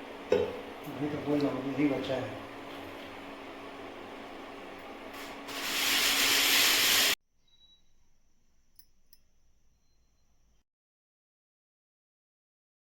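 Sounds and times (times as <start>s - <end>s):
loud steady hiss: 5.4s - 7.2s
faint high steady tone: 7.3s - 10.6s.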